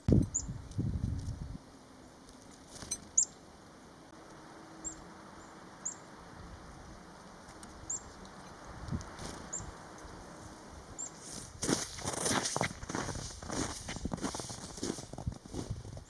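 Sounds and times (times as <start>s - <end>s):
songbird high chirps: 0.0s - 0.6s, 3.0s - 3.4s, 4.8s - 6.2s, 7.6s - 8.8s, 10.9s - 11.3s.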